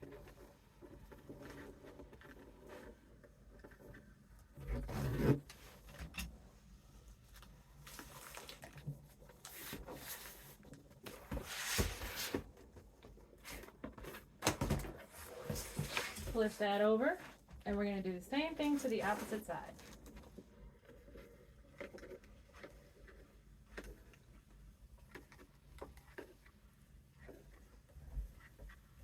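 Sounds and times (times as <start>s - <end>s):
rustling of paper bag and cardboard: 7.3s - 21.4s.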